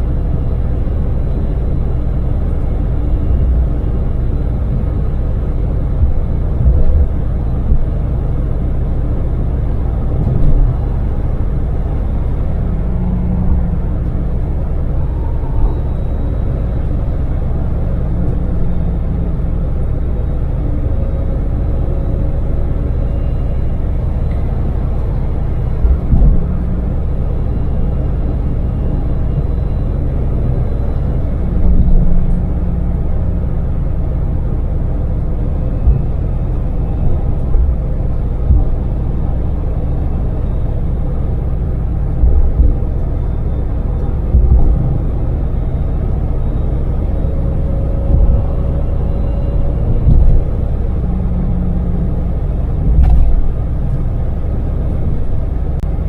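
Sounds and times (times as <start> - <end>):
road noise inside cab: 0.0 - 56.0
van engine rumble: 0.0 - 56.0
short low thumps: 38.4 - 39.2, 44.2 - 45.1, 48.0 - 54.0.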